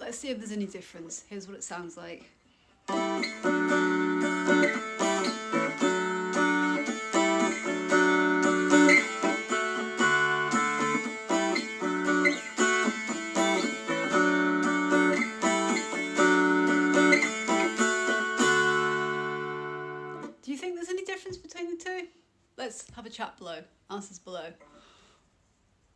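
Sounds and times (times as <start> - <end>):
mountain dulcimer strummed: 2.9 - 20.4.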